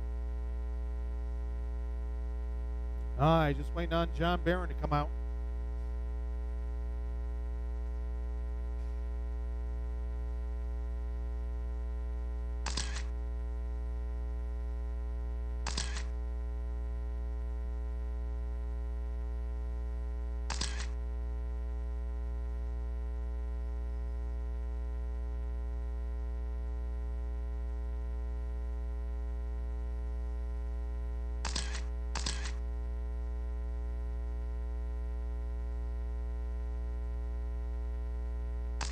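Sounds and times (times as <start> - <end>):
electrical mains hum: 0.0 - 38.9
short sharp clicks: 12.6 - 13.2, 15.7 - 16.2, 20.5 - 21.0, 31.4 - 32.6.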